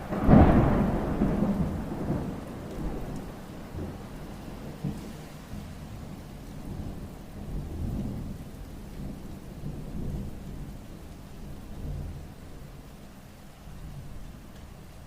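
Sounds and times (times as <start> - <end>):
low thunder rumbling: 0.0 - 12.8
rain falling: 0.0 - 15.0.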